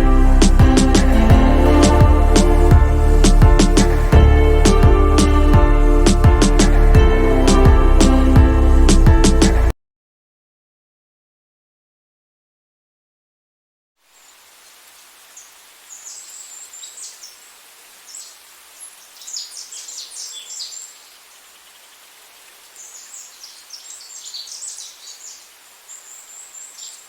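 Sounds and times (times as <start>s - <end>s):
faint outdoor hiss: 0.0s - 9.6s, 14.0s - 27.0s
small birds chirping: 14.2s - 27.0s.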